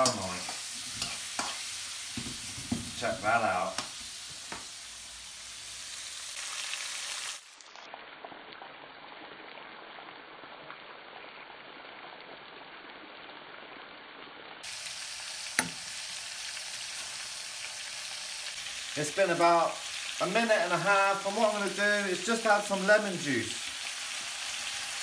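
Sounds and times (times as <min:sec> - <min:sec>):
seafood sizzling in hot oil: 0:00.0 - 0:08.4, 0:14.6 - 0:25.0.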